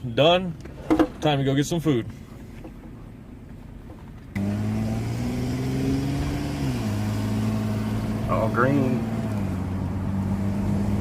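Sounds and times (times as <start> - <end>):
car engine while driving: 0.0 - 11.0.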